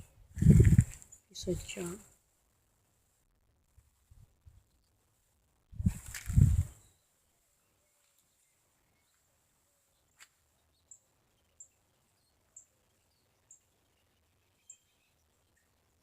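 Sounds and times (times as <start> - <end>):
small bird high chirp: 9.9 - 15.8.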